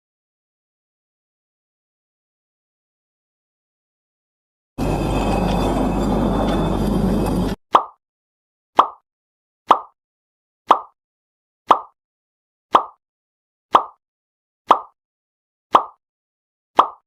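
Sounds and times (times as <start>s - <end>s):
rumbling with low hum: 4.8s - 7.6s
short plop: 7.7s - 8.0s, 8.8s - 9.0s, 9.7s - 10.0s, 10.7s - 11.0s, 11.7s - 12.0s, 12.7s - 13.0s, 13.7s - 14.0s, 14.7s - 15.0s, 15.7s - 16.0s, 16.8s - 17.0s.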